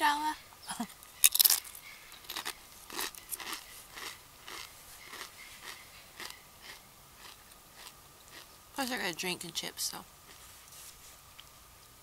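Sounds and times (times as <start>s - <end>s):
crunchy chips being chewed: 1.2s - 8.6s.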